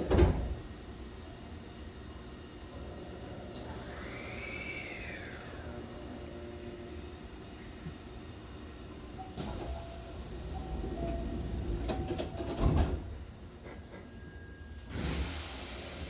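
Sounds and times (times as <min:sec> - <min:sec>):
train door hiss: 0:09.4 - 0:13.1, 0:14.9 - 0:16.0.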